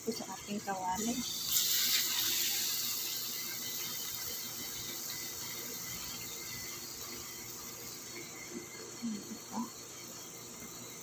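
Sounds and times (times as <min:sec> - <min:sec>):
eggs deep-frying in hot oil: 0:00.0 - 0:11.0.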